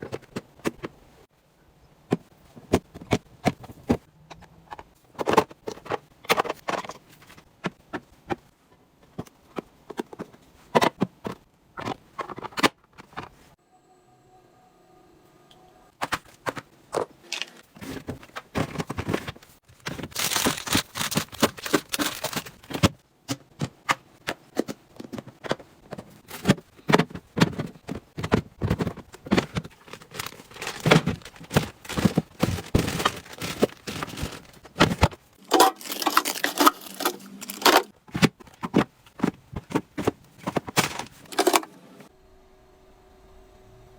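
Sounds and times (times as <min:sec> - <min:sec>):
items clicking and tapping: 0:00.0 - 0:01.0, 0:02.1 - 0:13.4, 0:16.0 - 0:41.7
packaging rustling and crinkling: 0:17.3 - 0:23.0, 0:27.4 - 0:41.6.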